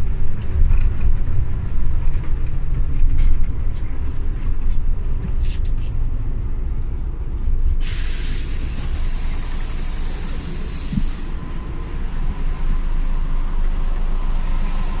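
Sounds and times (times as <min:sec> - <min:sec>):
bus engine rumble: 0:00.0 - 0:15.0
compressed air hiss: 0:07.8 - 0:11.4.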